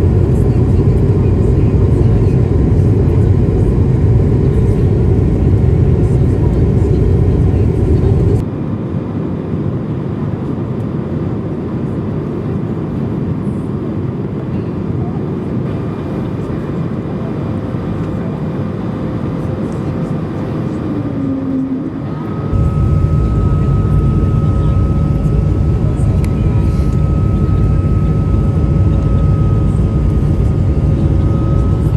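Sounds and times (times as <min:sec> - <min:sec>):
jet engine hum: 0:00.0 - 0:31.9
rush of air in cabin: 0:20.2 - 0:31.9.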